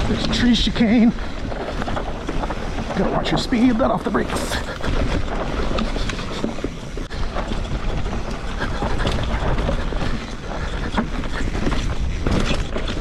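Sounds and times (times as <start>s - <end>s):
bike tyres on dirt: 4.1s - 5.0s
wind rumble on microphone: 4.1s - 13.0s.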